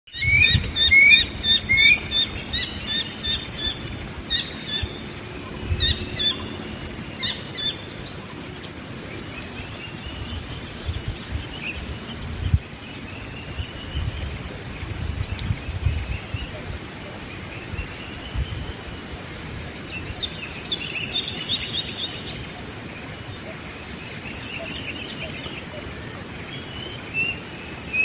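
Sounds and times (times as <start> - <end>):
birds chirping: 0.1 - 28.0.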